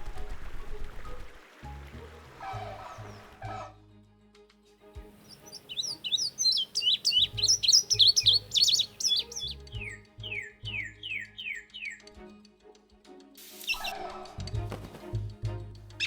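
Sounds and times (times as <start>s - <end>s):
soft background music: 0.0s - 16.0s
songbird singing: 2.4s - 3.6s, 5.1s - 12.1s, 13.6s - 14.2s.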